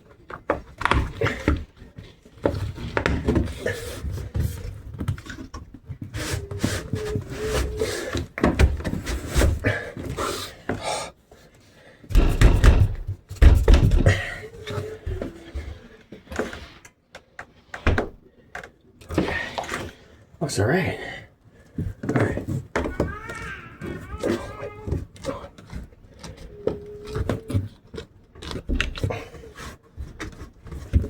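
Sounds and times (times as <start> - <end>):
hardware knocking on metal door: 12.1 - 14.2.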